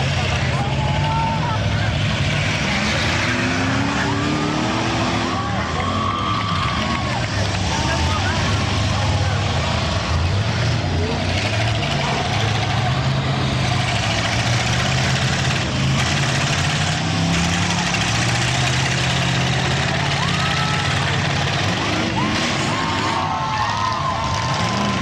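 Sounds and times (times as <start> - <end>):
car engines droning: 0.0 - 25.0
crowd voices: 0.0 - 25.0
people shouting: 0.4 - 1.8, 2.8 - 9.5, 18.6 - 25.0.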